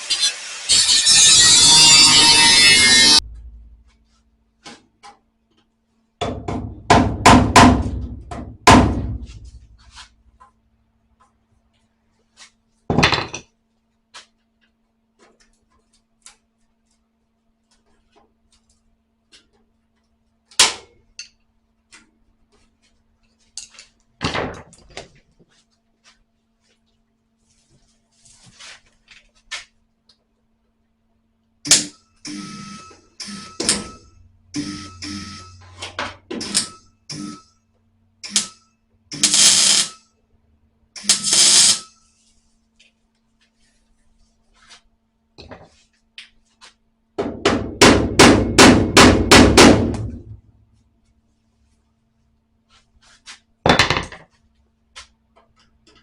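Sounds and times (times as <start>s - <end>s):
welder crackling bursts: 0.0s - 3.2s, 39.1s - 39.9s, 41.0s - 41.9s.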